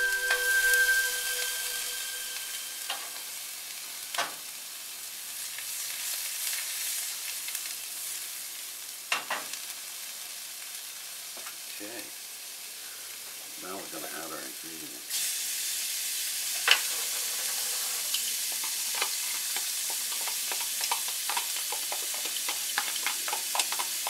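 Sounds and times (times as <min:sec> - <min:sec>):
fish and shrimp sizzling in oil: 0:00.0 - 0:24.0
cookware knocking on stove grate: 0:18.5 - 0:24.0.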